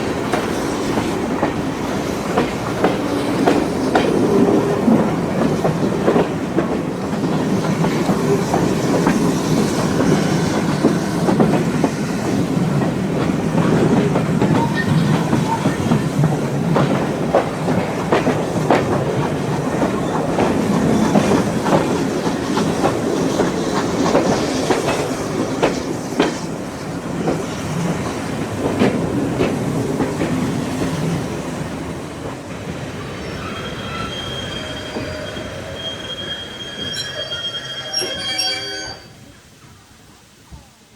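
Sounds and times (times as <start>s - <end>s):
train rumbling on rails: 0.0s - 39.4s
high wheel squeal: 33.1s - 39.3s.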